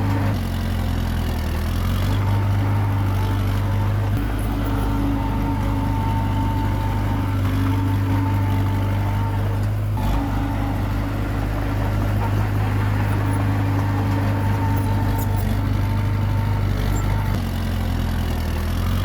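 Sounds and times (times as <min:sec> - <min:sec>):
bulldozer diesel engine running: 0:00.0 - 0:19.0.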